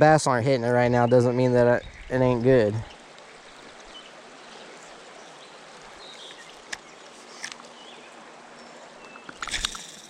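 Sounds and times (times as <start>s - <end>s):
flowing river: 0.0s - 10.0s
sharp clicks: 9.3s - 10.0s.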